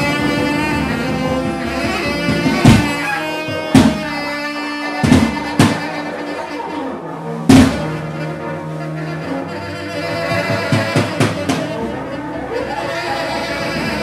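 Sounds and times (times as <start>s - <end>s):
loud sharp drum hits: 0.0s - 4.2s, 5.0s - 6.0s, 7.5s - 8.1s
cello: 0.0s - 14.0s
tenor saxophones droning: 0.0s - 14.0s.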